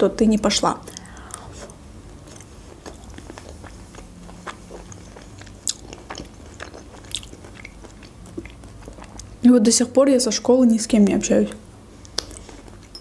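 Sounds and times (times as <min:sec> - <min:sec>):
person chewing food: 0:00.8 - 0:09.4, 0:12.0 - 0:13.0.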